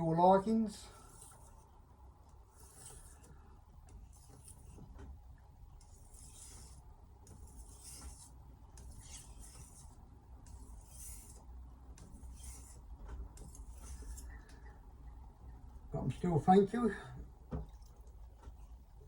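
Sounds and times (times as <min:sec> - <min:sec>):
knife scraping on sharpener: 0:02.5 - 0:03.4, 0:04.1 - 0:04.8, 0:05.8 - 0:12.8, 0:13.4 - 0:14.6.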